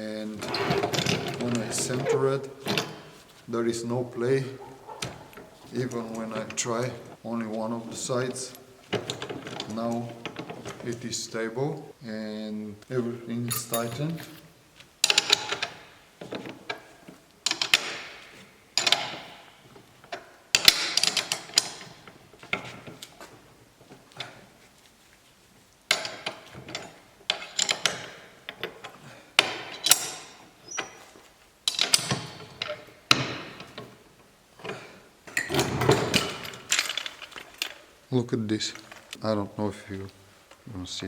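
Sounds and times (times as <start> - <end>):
floor jack metal clanks: 0.0 - 11.5, 31.7 - 37.9.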